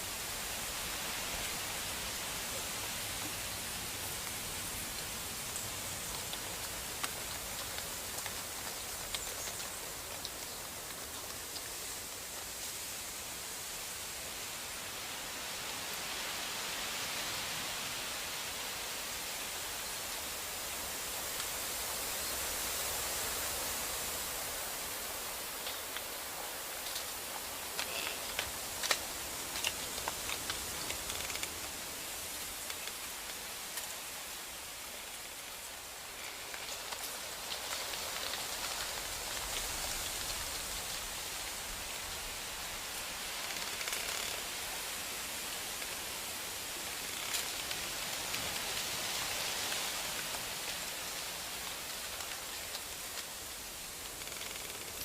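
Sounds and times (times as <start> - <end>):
hiss of falling snow: 0.0 - 55.0
light ticks on surfaces: 4.2 - 12.0, 26.8 - 34.0.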